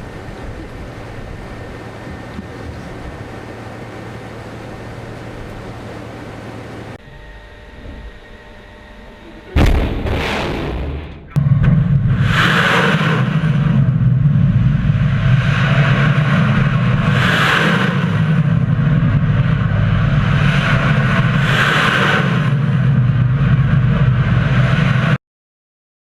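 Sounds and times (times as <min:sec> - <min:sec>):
missile motor roar: 0:00.0 - 0:25.2
hissing rush: 0:12.0 - 0:25.2.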